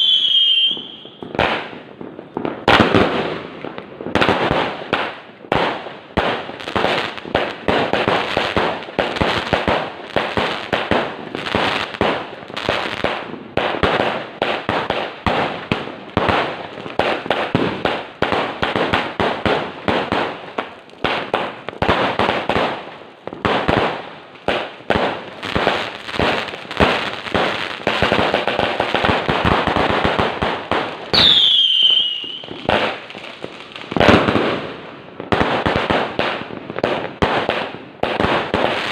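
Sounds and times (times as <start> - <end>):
falling firework whistle: 0.0 - 1.7, 31.1 - 33.0
firework shots and bursts: 0.0 - 38.9.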